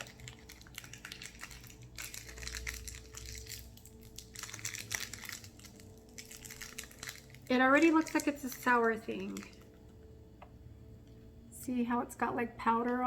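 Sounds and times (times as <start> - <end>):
candy wrapper crinkling: 0.0 - 9.8.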